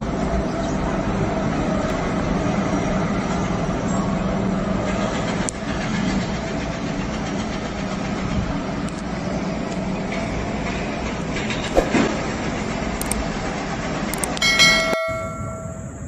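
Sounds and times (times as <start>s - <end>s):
vehicle engine rumbling: 10.3s - 16.0s
sharp click: 13.0s - 13.2s, 14.1s - 15.0s.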